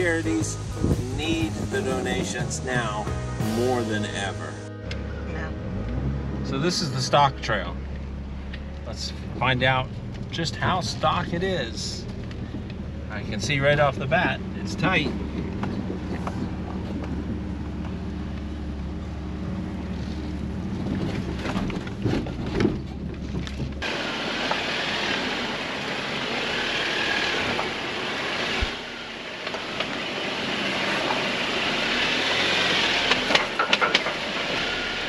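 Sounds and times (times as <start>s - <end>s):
engine running low: 0.0s - 35.0s
sharp knocks and clatters: 33.1s - 34.2s.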